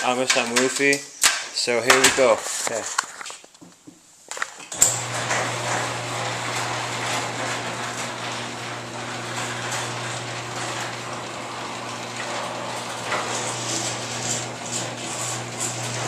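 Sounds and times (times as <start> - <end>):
garage door clattering and rattling: 4.8 - 16.0
garage door opener motor hum: 4.8 - 16.0.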